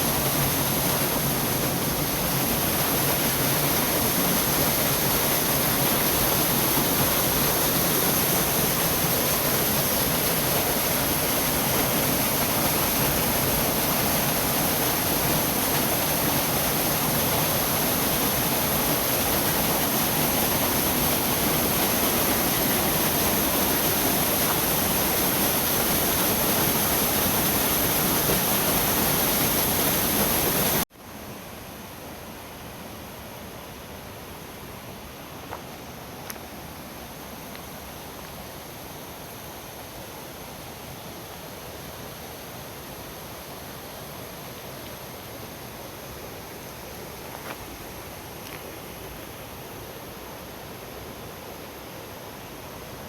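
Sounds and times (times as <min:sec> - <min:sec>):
river water rushing: 0:00.0 - 0:32.4.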